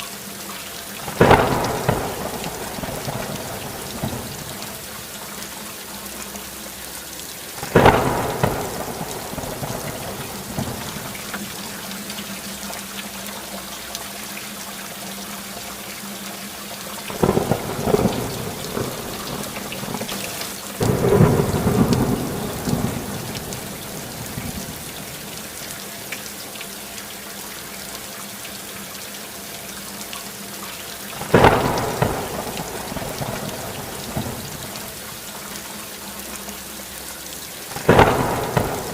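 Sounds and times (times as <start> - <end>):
steady rain falling: 0.0 - 38.9
thunder claps: 1.1 - 5.0, 7.6 - 11.6, 17.1 - 25.6, 31.2 - 35.0, 37.8 - 38.9.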